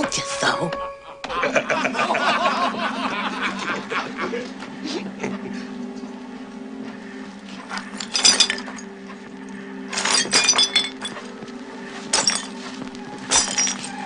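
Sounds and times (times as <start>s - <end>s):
steady low drone: 0.0s - 14.0s
glasses and bottles shattering: 7.7s - 8.9s, 9.9s - 11.4s, 12.1s - 14.0s.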